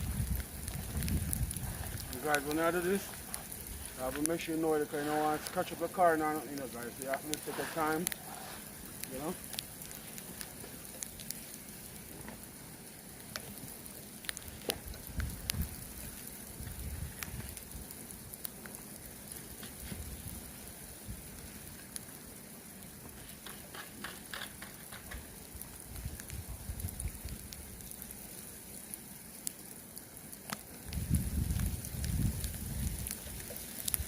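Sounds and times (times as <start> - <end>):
steady hiss: 0.0 - 34.0
broom brushing snow: 2.2 - 8.8.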